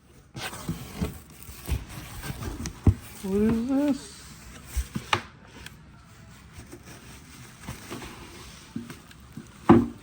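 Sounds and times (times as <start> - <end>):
packaging rustling: 0.3 - 5.1.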